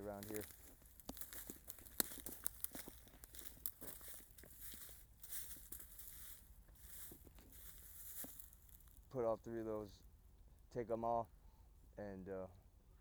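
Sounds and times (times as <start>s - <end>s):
twigs snapping: 0.0s - 9.0s
dry leaves crunching: 0.0s - 9.1s.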